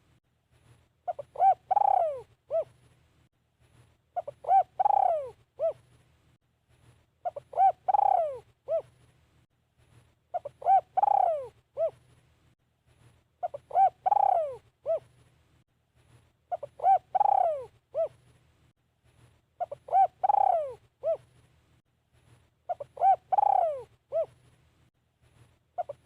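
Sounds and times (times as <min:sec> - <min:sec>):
dove cooing: 0:01.1 - 0:02.8, 0:04.2 - 0:05.9, 0:07.2 - 0:09.0, 0:10.3 - 0:12.0, 0:13.4 - 0:15.1, 0:16.5 - 0:18.2, 0:19.6 - 0:21.3, 0:22.7 - 0:24.4, 0:25.8 - 0:26.0.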